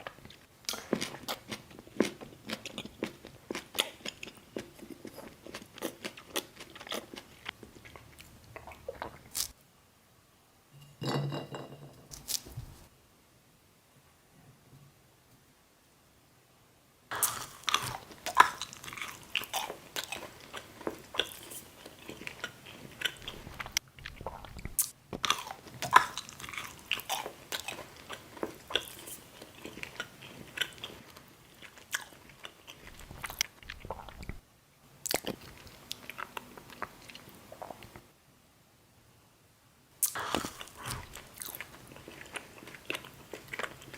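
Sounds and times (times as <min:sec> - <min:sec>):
person chewing crunchy food: 0:00.0 - 0:09.6, 0:17.1 - 0:34.4, 0:35.0 - 0:38.0, 0:40.0 - 0:43.9.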